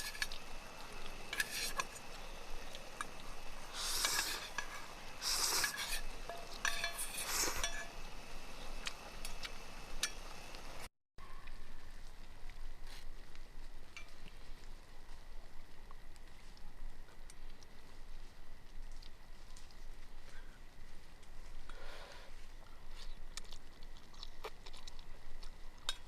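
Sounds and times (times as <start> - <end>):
utensil scraping food in a pan: 0.0 - 8.0
faint sizzle: 0.0 - 26.0
steady hiss with ticks: 0.0 - 26.0.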